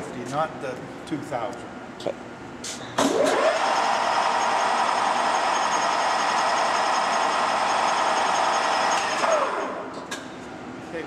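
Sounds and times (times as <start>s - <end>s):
lathe spindle whine: 3.2s - 9.8s.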